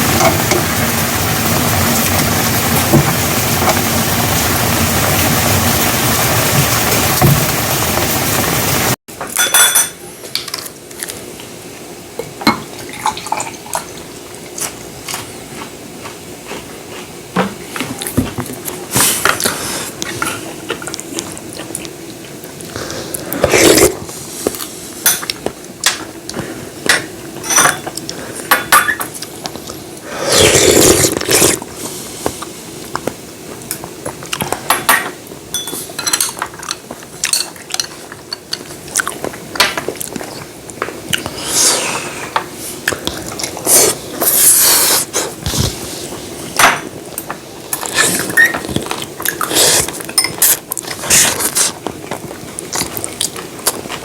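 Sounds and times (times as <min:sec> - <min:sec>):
utensils clinking against dishes: 0:09.2 - 0:10.7, 0:25.0 - 0:26.0, 0:26.8 - 0:29.3, 0:34.4 - 0:39.9, 0:46.6 - 0:51.7
dishes clattering: 0:09.3 - 0:10.0, 0:34.6 - 0:38.4.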